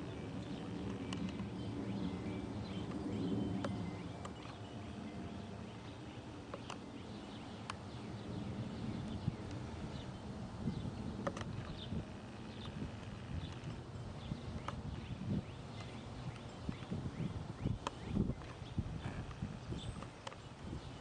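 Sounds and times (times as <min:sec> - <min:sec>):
birds chirping: 0:00.0 - 0:21.0
distant jet airliner rumble: 0:00.0 - 0:21.0.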